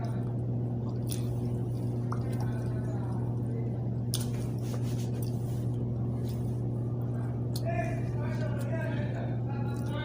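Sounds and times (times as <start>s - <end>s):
person chewing hard bread: 0.0s - 8.8s
wet mouth clicks and smacks: 4.0s - 4.5s.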